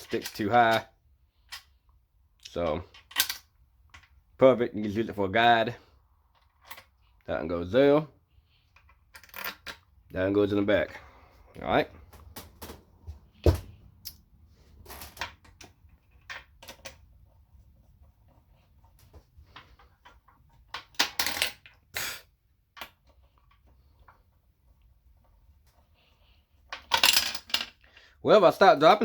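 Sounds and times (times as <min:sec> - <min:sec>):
small metal parts clinking: 0:26.7 - 0:27.9.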